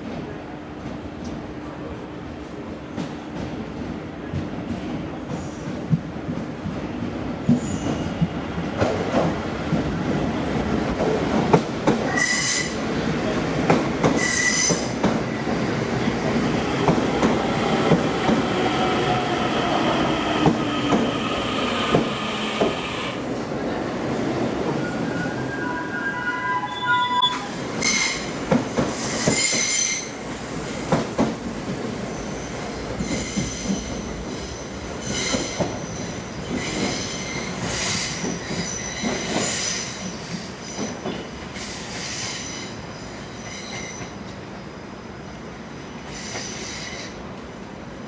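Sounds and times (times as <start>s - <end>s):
train wheels squealing: 7.6s - 8.2s, 12.1s - 12.8s, 14.2s - 14.9s, 24.8s - 28.3s, 28.9s - 30.2s, 32.1s - 45.2s, 46.0s - 47.2s.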